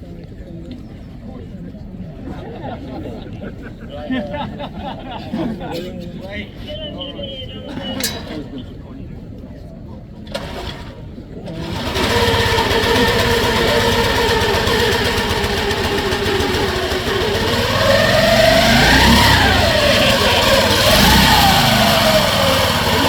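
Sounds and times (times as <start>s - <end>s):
racing motorcycle engine revving: 11.5s - 23.0s.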